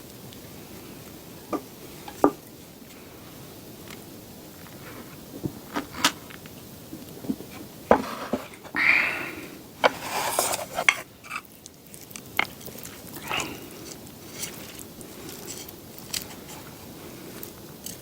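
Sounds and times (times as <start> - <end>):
scraping and rustling: 7.2 - 8.8, 9.8 - 11.4, 12.9 - 18.0
utensils clicking on dishes: 12.4 - 16.8.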